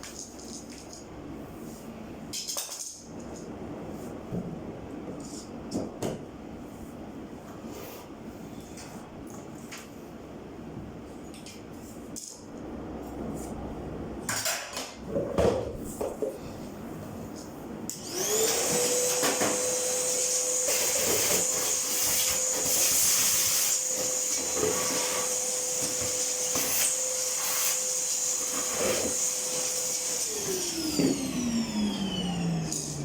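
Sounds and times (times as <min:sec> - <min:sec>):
electric motor whining: 0:18.0 - 0:20.9, 0:25.2 - 0:33.0.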